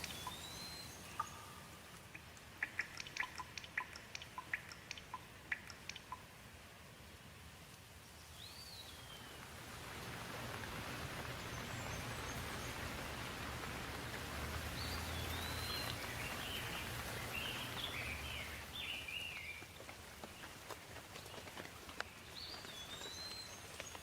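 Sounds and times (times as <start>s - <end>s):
bird whistling and chirping: 0.0s - 1.5s, 14.8s - 19.6s
steady rain falling: 0.0s - 24.0s.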